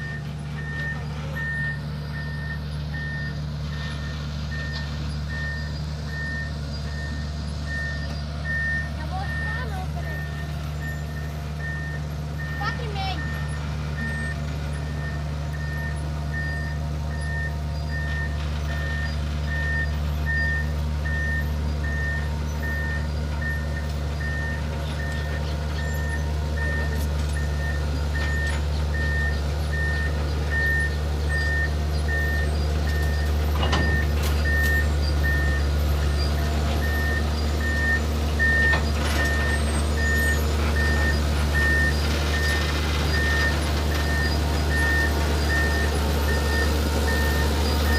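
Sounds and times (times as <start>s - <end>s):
diesel engine drone: 0.0s - 47.9s
warning beeper short beeps: 7.8s - 17.4s.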